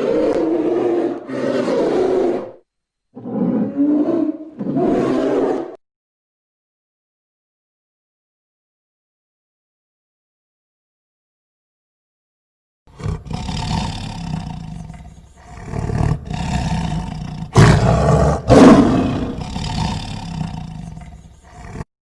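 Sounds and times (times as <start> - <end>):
large animal roaring: 0.0 - 2.6, 3.2 - 5.8, 13.0 - 21.9.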